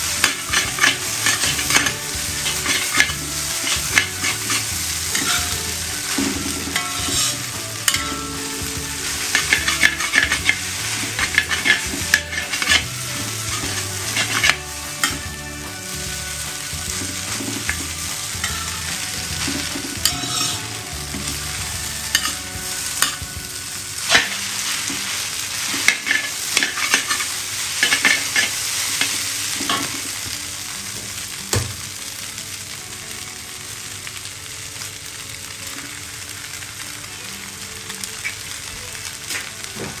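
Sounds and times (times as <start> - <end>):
noodles sizzling in a pan: 0.0 - 40.0.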